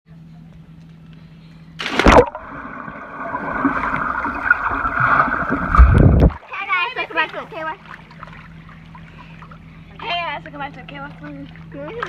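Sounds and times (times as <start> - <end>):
water rushing: 1.8 - 6.6.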